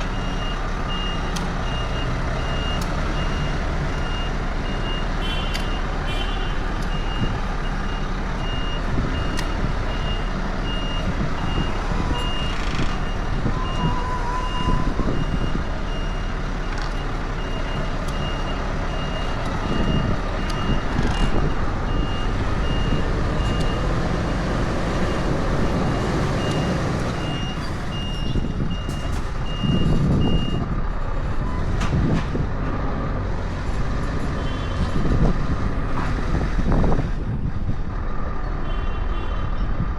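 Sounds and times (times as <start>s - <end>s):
truck reversing alarm beeping: 0.0s - 30.8s
diesel engine running: 0.0s - 38.6s.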